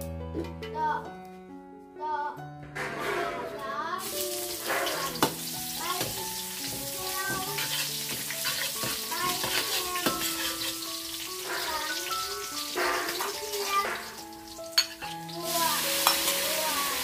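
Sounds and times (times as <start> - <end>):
onion sizzling in hot oil: 4.0 - 17.0.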